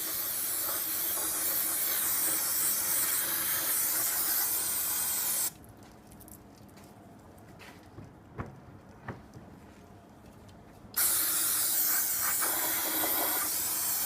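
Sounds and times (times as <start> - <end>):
aerosol can spraying hiss: 0.0 - 5.5, 11.0 - 14.0.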